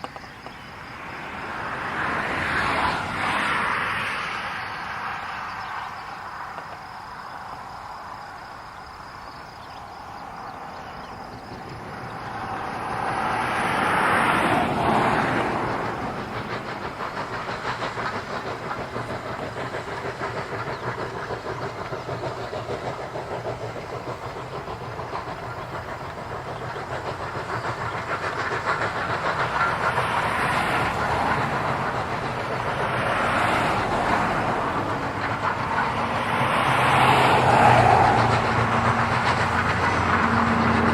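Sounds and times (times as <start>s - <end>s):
steam hissing: 0.0s - 40.9s
steam train wheels clattering: 0.0s - 40.9s.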